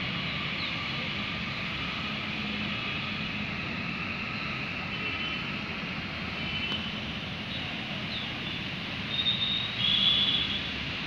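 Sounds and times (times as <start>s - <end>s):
birds whistling: 8.1s - 10.6s.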